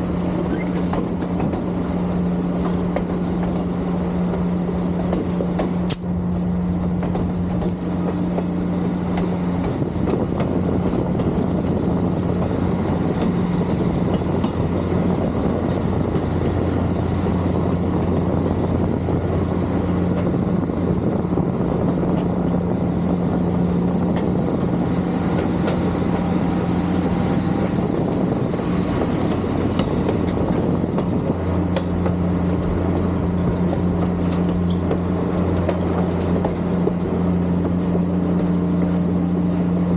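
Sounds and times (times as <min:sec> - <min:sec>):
vehicle running noise: 0:00.0 - 0:39.9
low drone: 0:05.8 - 0:09.1.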